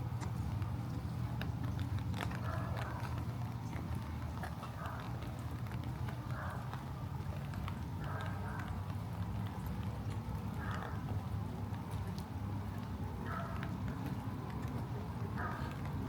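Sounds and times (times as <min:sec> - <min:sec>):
footsteps on wet pavement: 0:00.0 - 0:16.0
low outdoor rumble: 0:00.0 - 0:16.0
raindrops ticking: 0:00.0 - 0:16.0.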